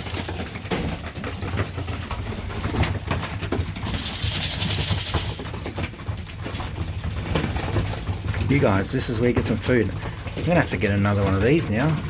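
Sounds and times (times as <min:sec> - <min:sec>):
pigeons cooing: 0:00.0 - 0:12.0
rustling hiss: 0:03.9 - 0:05.5.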